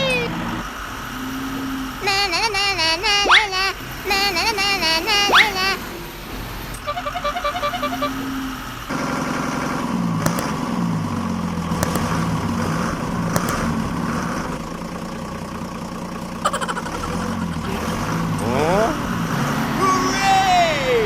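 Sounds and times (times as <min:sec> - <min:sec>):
vehicle engine revving: 0:00.0 - 0:21.0
sharp clicks: 0:10.1 - 0:10.9, 0:11.7 - 0:14.7.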